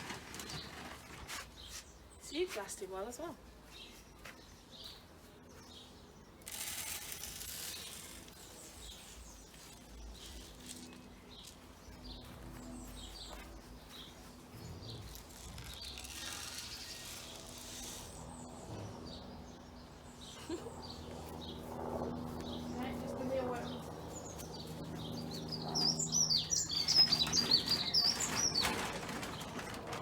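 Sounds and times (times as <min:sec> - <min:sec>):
birds chirping: 0:00.2 - 0:06.7, 0:07.6 - 0:30.0
loud rustling hiss: 0:06.4 - 0:11.1, 0:14.6 - 0:18.6.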